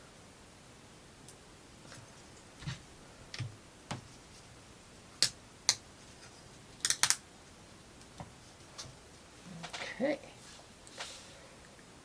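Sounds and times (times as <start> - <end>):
wooden parts clicking together: 6.8 - 7.2.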